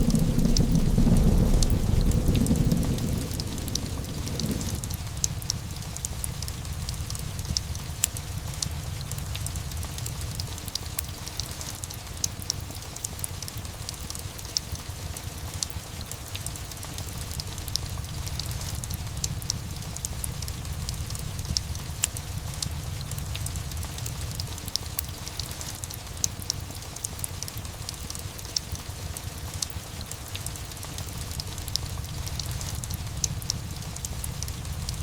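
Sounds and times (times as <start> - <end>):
low thunder rumble: 0.0 - 10.8, 17.1 - 25.7, 31.1 - 35.0
fireplace crackling and popping: 0.0 - 35.0
steady rain: 0.0 - 35.0.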